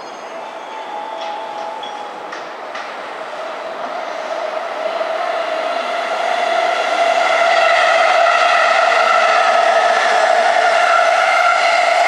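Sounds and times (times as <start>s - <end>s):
electric train whine: 0.0s - 12.0s.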